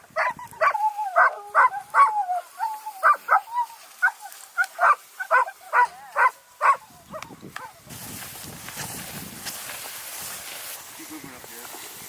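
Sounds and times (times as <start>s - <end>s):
dogs yelping: 0.0s - 7.8s.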